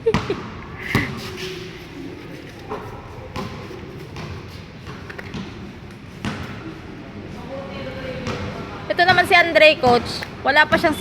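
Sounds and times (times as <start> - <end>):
basketball bouncing on indoor court: 0.0 - 1.4, 3.3 - 6.7, 8.2 - 11.0.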